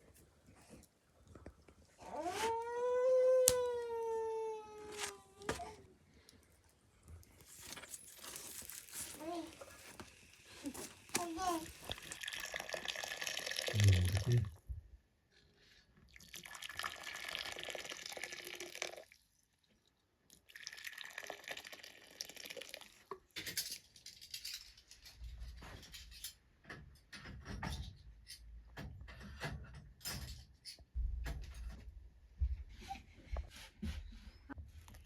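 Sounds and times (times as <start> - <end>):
liquid pouring: 11.7 - 14.5, 16.1 - 19.2, 20.4 - 23.1.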